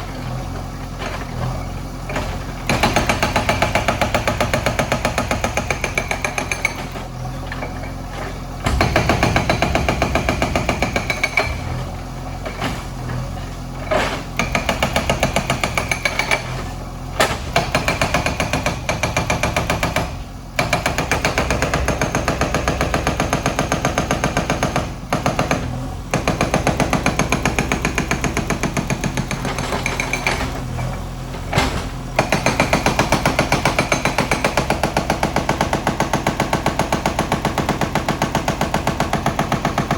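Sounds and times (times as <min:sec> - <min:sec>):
diesel engine running: 0:00.0 - 0:39.9
hydraulic breaker hammering masonry: 0:00.3 - 0:39.9.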